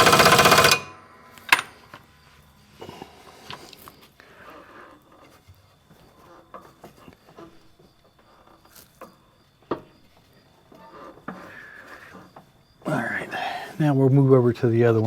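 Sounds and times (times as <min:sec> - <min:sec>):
faint scraping and rubbing: 0:01.7 - 0:13.1.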